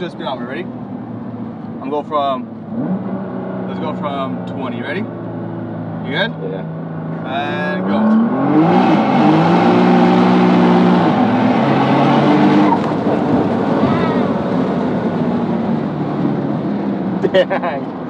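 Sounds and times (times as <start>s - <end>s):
car engine at full throttle: 0.0s - 18.0s.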